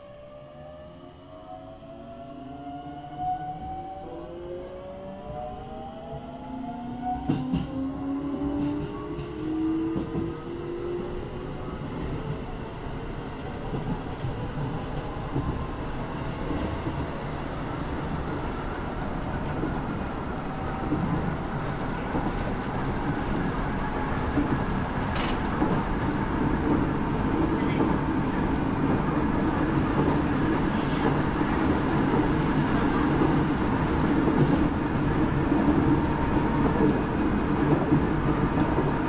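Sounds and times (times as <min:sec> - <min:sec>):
train wheels rumbling on rail: 0:03.2 - 0:39.0.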